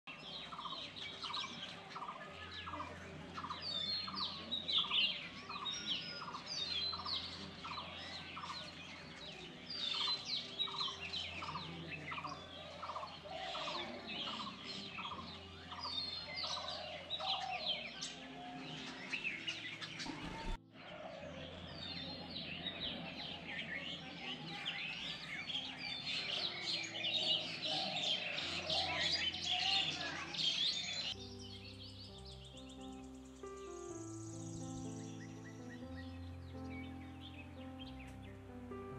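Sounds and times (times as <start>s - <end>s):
small birds chirping: 0.1s - 38.9s.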